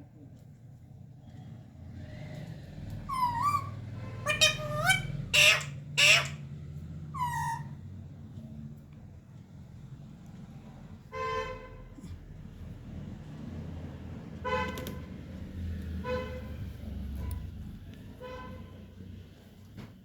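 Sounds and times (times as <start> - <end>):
parrot squawking: 3.1 - 6.5, 7.2 - 7.8.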